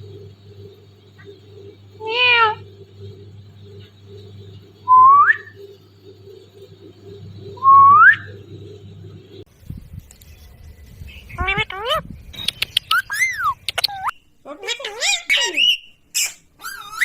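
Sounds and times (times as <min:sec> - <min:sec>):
parrot mimicking meow: 0:02.0 - 0:02.6
parrot rising whistles: 0:04.9 - 0:05.5, 0:07.6 - 0:08.3.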